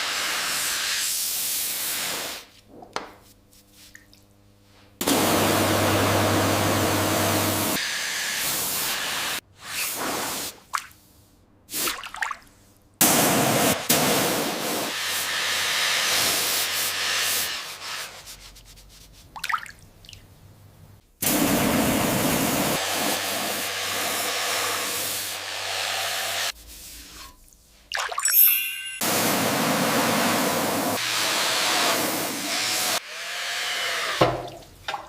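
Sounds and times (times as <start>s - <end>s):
hissing spray: 13.0s - 18.2s, 21.2s - 26.6s, 29.0s - 32.5s.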